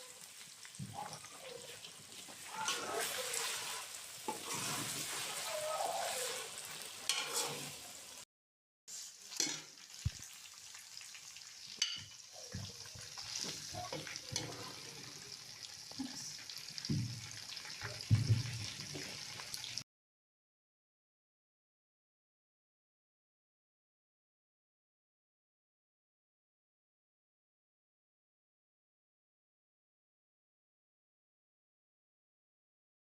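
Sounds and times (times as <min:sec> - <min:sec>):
chicken sizzling in a pan: 0:00.0 - 0:08.2, 0:08.9 - 0:19.8
spoon stirring and knocking pan: 0:04.2 - 0:05.3, 0:07.0 - 0:07.8, 0:09.4 - 0:10.2, 0:11.8 - 0:15.1, 0:16.8 - 0:19.2.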